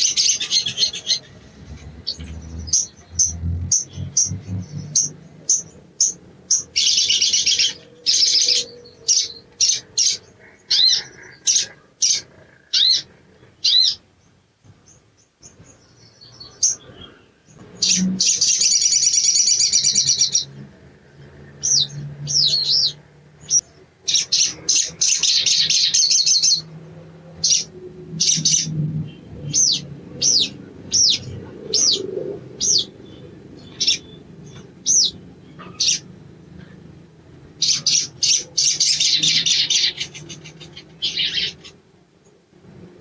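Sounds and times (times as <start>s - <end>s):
bird chattering trills: 0.0s - 14.0s, 27.4s - 36.9s, 37.6s - 41.9s.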